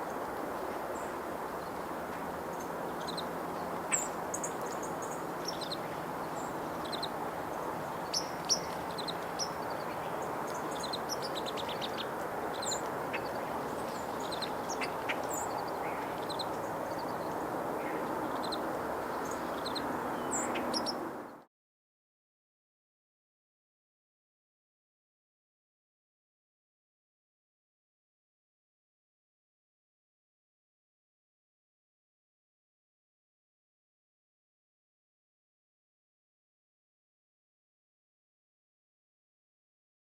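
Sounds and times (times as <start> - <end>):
small songbirds chirping: 0.0 - 21.4.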